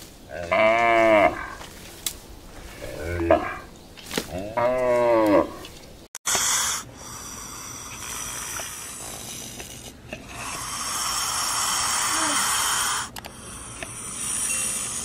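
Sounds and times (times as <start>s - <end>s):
cow mooing: 0.3s - 1.6s, 4.4s - 5.6s.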